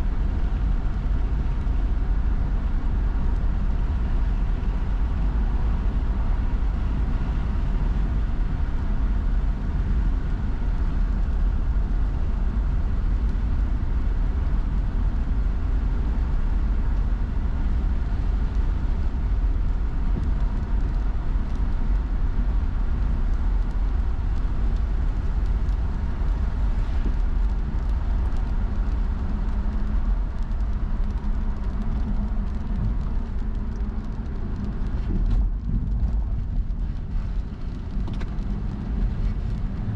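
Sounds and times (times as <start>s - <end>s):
car tyres on wet road: 0.0s - 39.9s
faint ticks: 23.3s - 39.9s.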